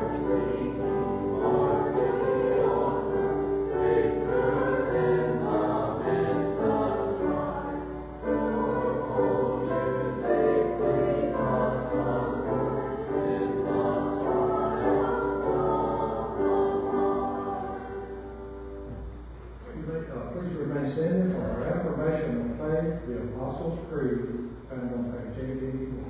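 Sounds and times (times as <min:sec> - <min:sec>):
group singing a hymn: 0:00.0 - 0:19.0.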